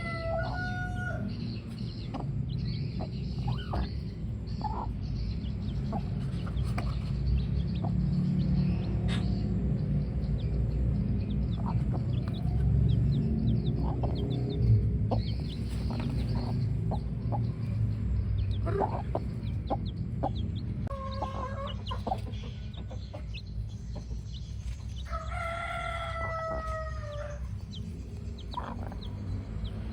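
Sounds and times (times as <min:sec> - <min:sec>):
rooster crowing: 0:00.0 - 0:01.4, 0:25.0 - 0:27.5
chickens clucking: 0:00.0 - 0:09.6, 0:11.2 - 0:29.9
chicks peeping: 0:00.0 - 0:29.9
low rumble: 0:01.2 - 0:29.9.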